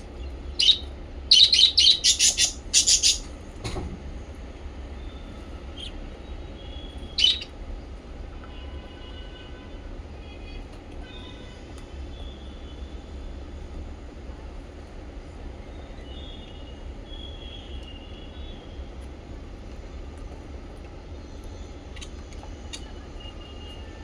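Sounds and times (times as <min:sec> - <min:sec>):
pet birds chirping: 0:00.0 - 0:03.4, 0:05.0 - 0:07.6, 0:21.2 - 0:24.0.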